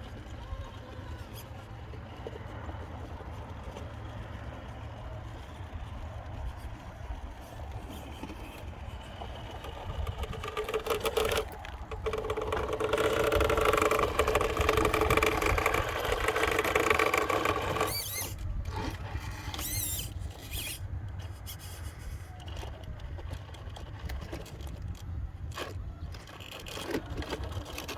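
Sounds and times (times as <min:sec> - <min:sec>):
electric motor whining: 0:07.7 - 0:20.8
rising squeals: 0:10.6 - 0:18.4.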